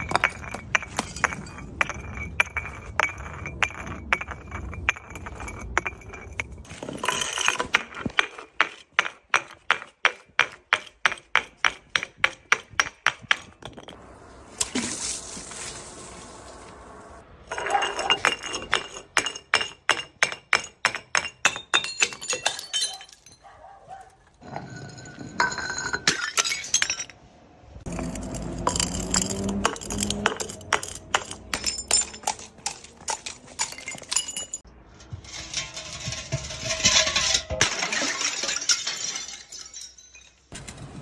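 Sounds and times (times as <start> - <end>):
glass shattering and crunching: 0.0 - 9.7, 17.5 - 23.6, 25.0 - 27.2, 27.9 - 34.7, 35.3 - 40.6
glass bottles knocking and clinking: 0.0 - 14.0, 17.5 - 23.5, 24.4 - 27.2, 27.9 - 34.7, 35.5 - 40.6.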